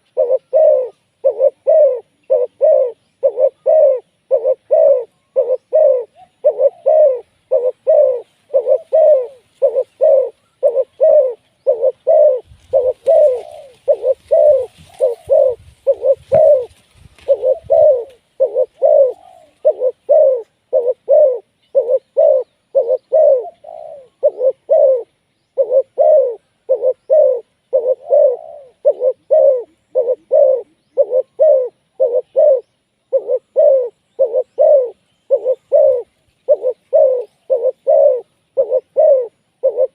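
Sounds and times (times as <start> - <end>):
doves cooing: 0.0 - 39.9
faint rustling: 11.4 - 20.5.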